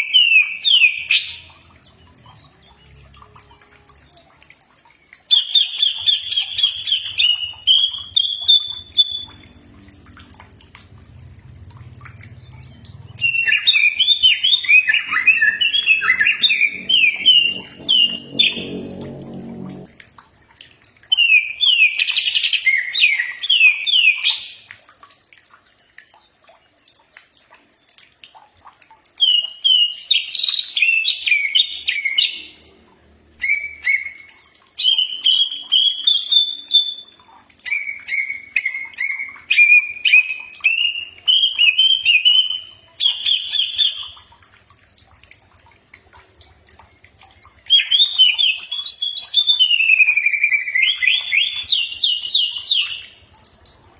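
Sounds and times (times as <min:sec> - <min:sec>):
bird singing whistled notes: 0:33.4 - 0:37.1.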